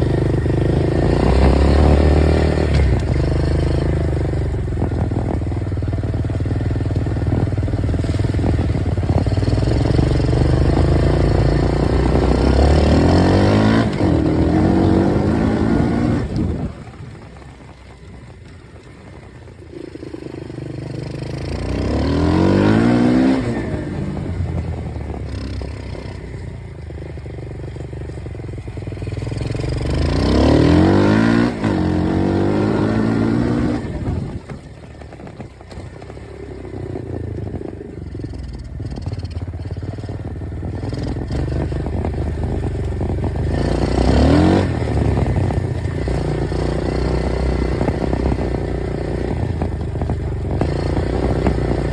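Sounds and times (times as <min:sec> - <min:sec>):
dirt bike engine revving: 0:00.0 - 0:04.6, 0:07.3 - 0:17.7, 0:19.7 - 0:24.4, 0:29.0 - 0:34.7, 0:38.4 - 0:51.9.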